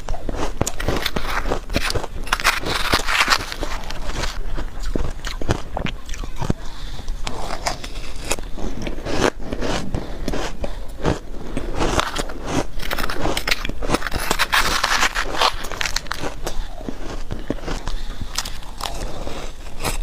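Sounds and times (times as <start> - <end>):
chewing shaved ice: 0.0 - 20.0.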